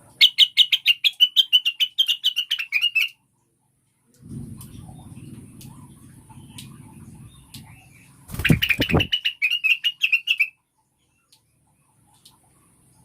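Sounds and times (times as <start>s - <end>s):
bird high chirps: 0.2s - 3.2s, 6.4s - 11.4s
low rumbling noise: 4.2s - 9.1s.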